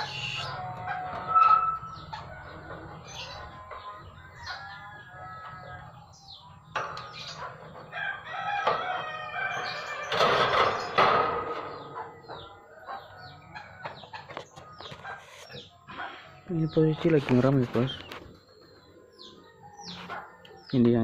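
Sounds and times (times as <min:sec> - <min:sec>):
short high bird chirps: 0:00.0 - 0:00.6
long loud bird call: 0:00.0 - 0:02.1.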